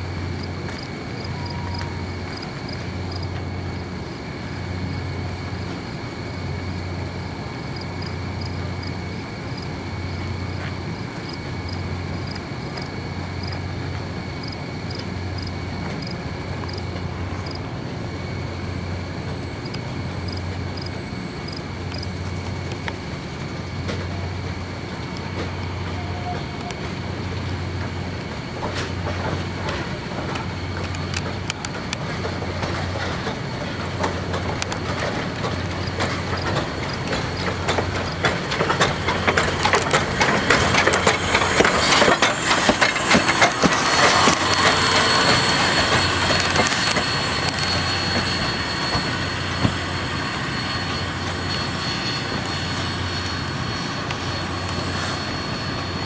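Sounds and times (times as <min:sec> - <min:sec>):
steam locomotive running past: 0:00.0 - 0:56.0
wheels clicking and clanking: 0:25.1 - 0:56.0
thin high squeal: 0:43.8 - 0:56.0.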